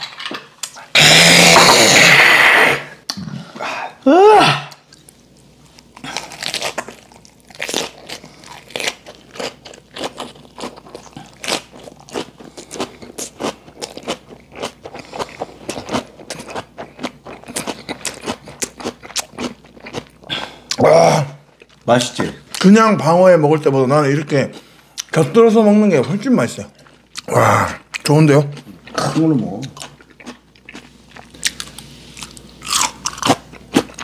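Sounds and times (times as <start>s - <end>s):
person crunching food: 4.7s - 22.7s, 26.6s - 34.0s.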